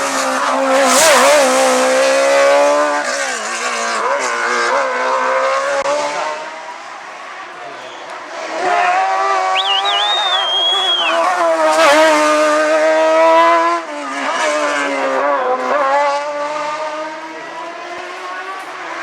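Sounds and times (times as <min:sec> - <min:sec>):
race car engine revving: 0:00.0 - 0:19.0
high whistling tone: 0:09.4 - 0:11.3.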